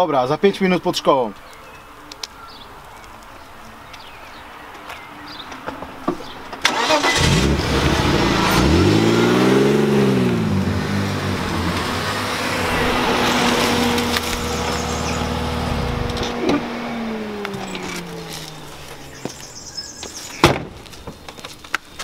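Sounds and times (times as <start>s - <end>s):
car engine revving: 6.7s - 19.9s.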